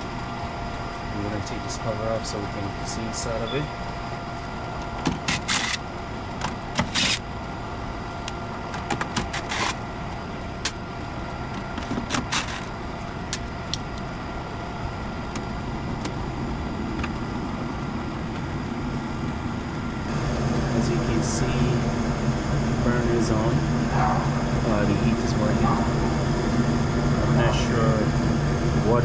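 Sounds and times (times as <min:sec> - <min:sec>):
furnace humming: 0:00.0 - 0:29.0.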